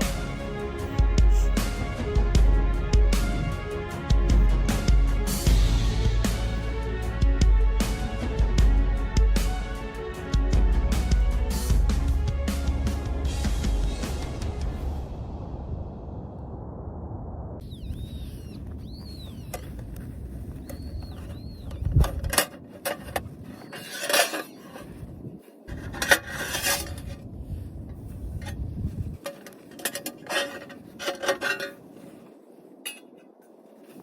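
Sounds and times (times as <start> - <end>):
birds chirping faintly: 17.6 - 19.9, 20.6 - 22.0
metal camping gear clinking: 19.5 - 25.0, 29.2 - 34.0.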